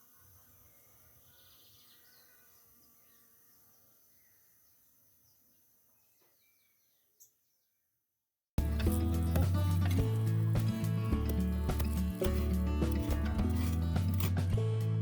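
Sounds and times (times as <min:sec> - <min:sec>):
small bird chirps: 0:00.2 - 0:07.8.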